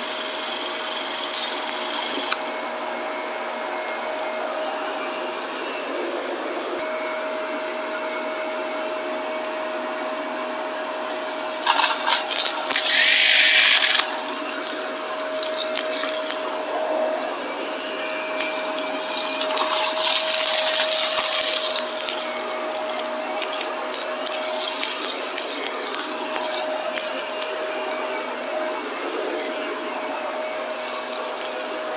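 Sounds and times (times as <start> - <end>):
vacuum cleaner motor whine: 0.0 - 31.9
vacuum sucking up crunchy debris: 9.6 - 31.9.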